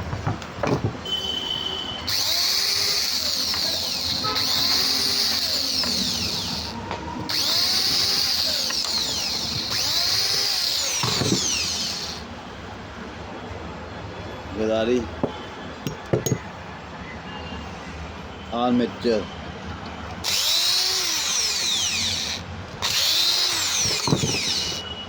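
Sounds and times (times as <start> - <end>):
polishing machine motor whine: 2.1 - 12.2, 20.2 - 24.9.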